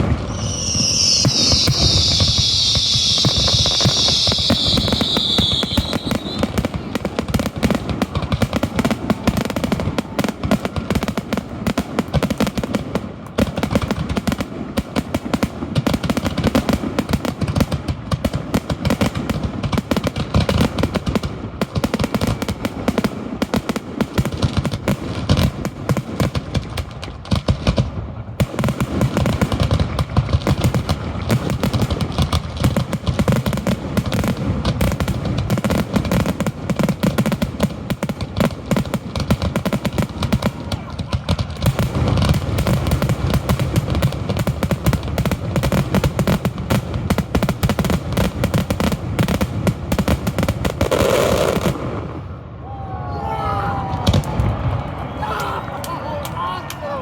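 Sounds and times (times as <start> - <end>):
firework shells bursting: 0.0 - 8.3.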